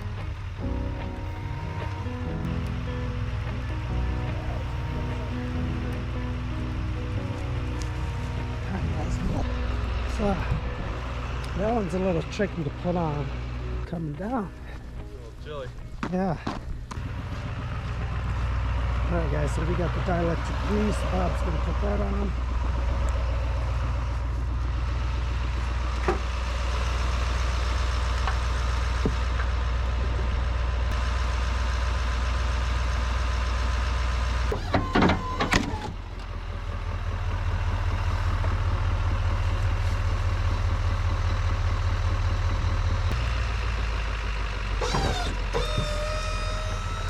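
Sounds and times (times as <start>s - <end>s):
pickup truck engine idling: 0.0s - 47.0s.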